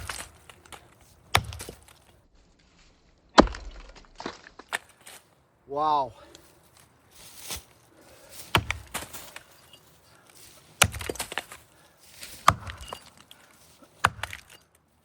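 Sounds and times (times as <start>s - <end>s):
axe chopping tree trunk: 0.0s - 2.1s, 3.4s - 4.9s, 8.4s - 9.2s, 10.8s - 11.6s, 12.2s - 13.1s, 14.0s - 14.6s.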